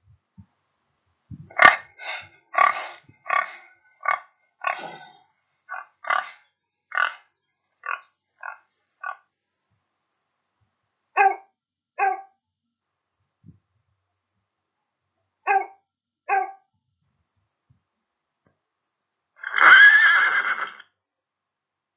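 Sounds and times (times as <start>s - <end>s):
pig oinks: 1.5s - 1.9s, 2.5s - 9.2s
dog barks: 11.2s - 12.4s, 15.4s - 16.7s.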